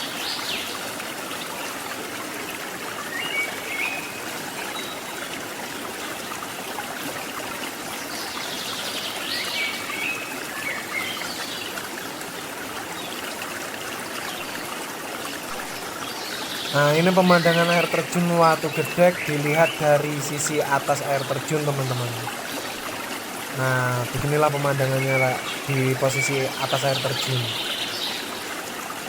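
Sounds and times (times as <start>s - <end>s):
river flowing over rocks: 0.0s - 29.0s
waterfall rushing: 8.6s - 29.0s.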